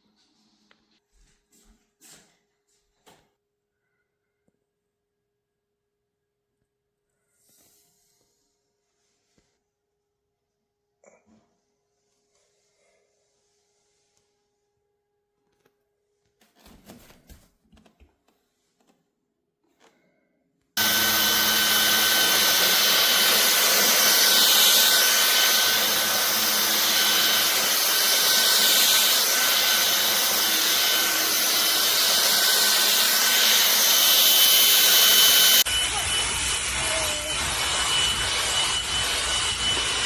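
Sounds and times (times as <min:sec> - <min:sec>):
stick vacuum running: 0:20.8 - 0:40.0.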